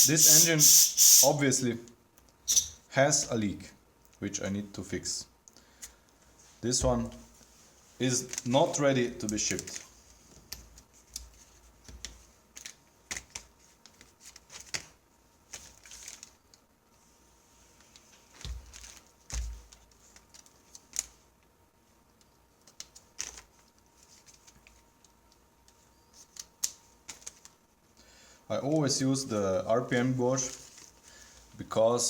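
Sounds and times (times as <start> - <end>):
faint air hiss: 0.0 - 1.8.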